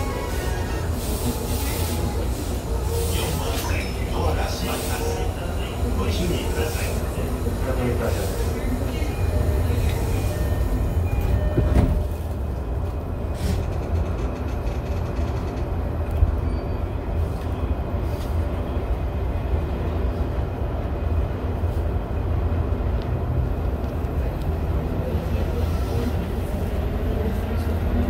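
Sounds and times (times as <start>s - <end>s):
train interior rumble: 0.0s - 28.0s
train clatter: 8.8s - 16.6s.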